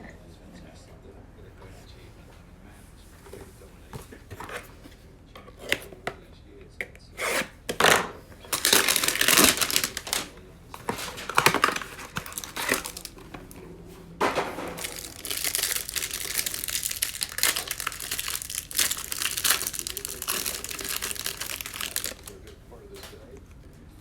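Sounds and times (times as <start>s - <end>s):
plastic wrapper tearing and crinkling: 7.7s - 13.6s, 14.6s - 22.5s.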